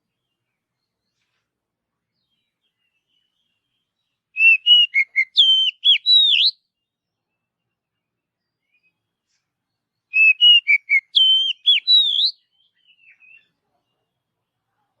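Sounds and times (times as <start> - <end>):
bird singing whistled notes: 2.2 - 13.6.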